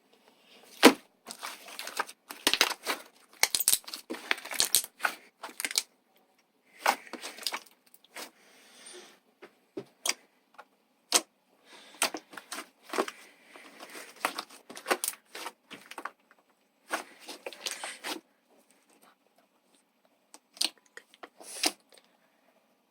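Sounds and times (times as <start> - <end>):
slime popping and crackling: 0.8 - 5.9.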